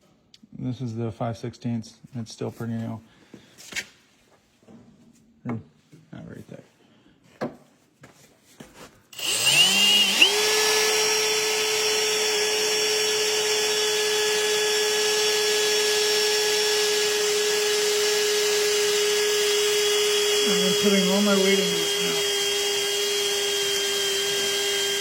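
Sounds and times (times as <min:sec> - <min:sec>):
power drill whine: 0:09.1 - 0:25.0.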